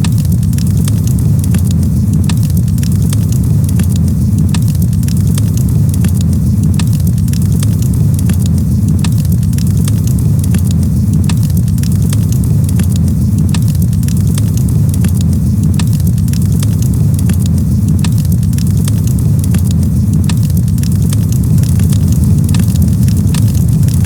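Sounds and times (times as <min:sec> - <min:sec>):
campfire crackling and popping: 0:00.0 - 0:24.0
low rumble: 0:17.1 - 0:24.0.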